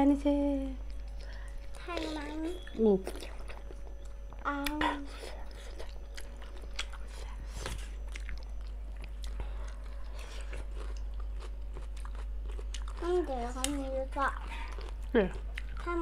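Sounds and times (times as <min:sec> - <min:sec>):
chewing and biting: 0:00.8 - 0:16.0
wet clicks and crunches: 0:12.6 - 0:13.8.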